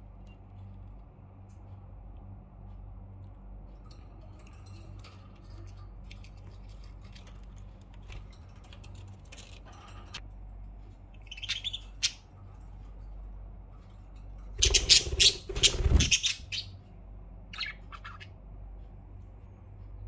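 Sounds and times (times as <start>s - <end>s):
low hum: 0.0s - 20.0s
budgerigars chirping and squawking: 11.2s - 12.3s, 14.6s - 16.8s, 17.5s - 18.4s.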